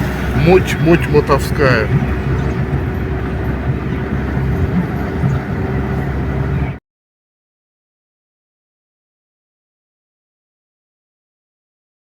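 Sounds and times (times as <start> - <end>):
vehicle engine idling: 0.0 - 6.8.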